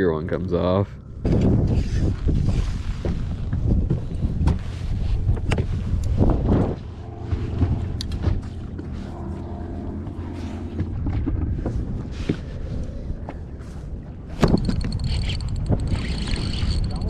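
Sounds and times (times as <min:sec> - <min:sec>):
wind buffeting microphone: 0:00.0 - 0:17.0
fishing tackle clicking: 0:14.4 - 0:17.0.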